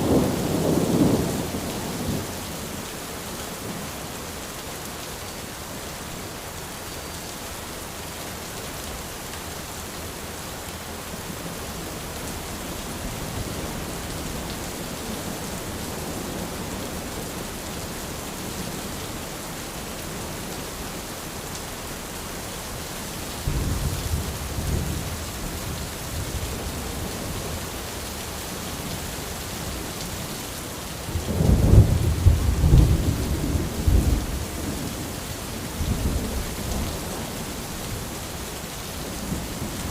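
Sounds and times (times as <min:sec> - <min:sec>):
rain on an umbrella: 0:00.0 - 0:39.9
thunder rumbling: 0:31.1 - 0:35.1.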